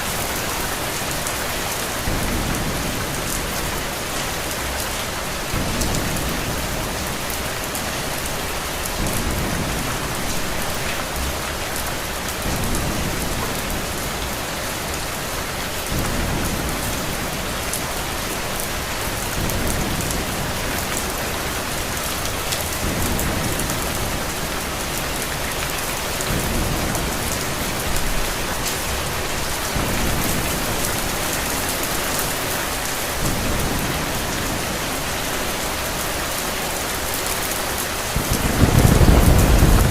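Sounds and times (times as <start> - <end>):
rain falling on a surface: 0.0 - 39.9
low thunder rumble: 38.0 - 39.9.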